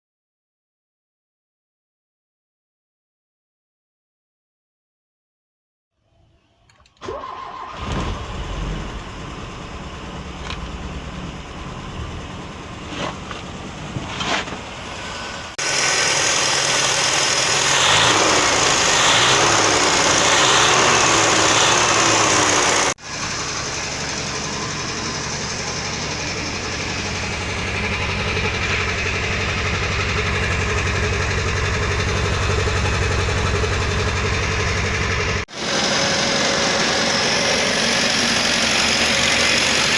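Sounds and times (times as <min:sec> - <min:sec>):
car engine idling: 0:07.0 - 0:39.9
car engine running unevenly: 0:07.0 - 0:39.9.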